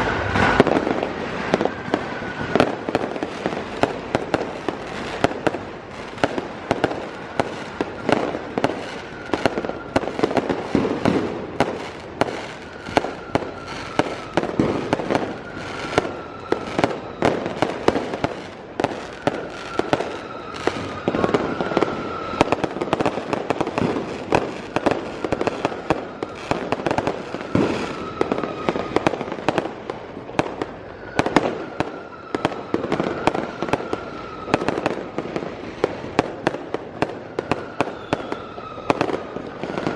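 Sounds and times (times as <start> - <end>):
firecrackers banging and popping: 0.0 - 39.9
faint falling whistle: 37.5 - 39.9.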